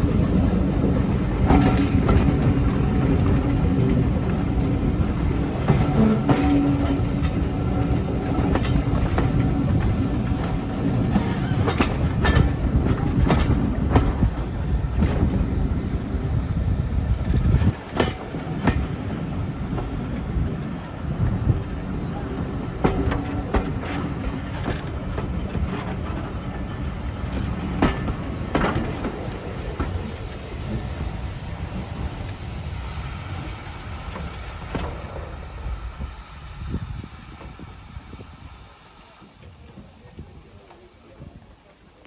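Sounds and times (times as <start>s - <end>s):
wheels clicking over rail joints: 0.0s - 37.7s
train rumbling on rails: 0.0s - 42.0s
sharp clanks and knocks: 5.3s - 15.4s.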